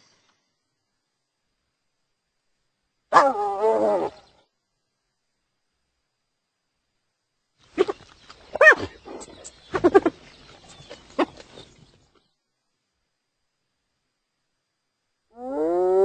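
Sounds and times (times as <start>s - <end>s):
hyena calling: 7.7s - 11.9s.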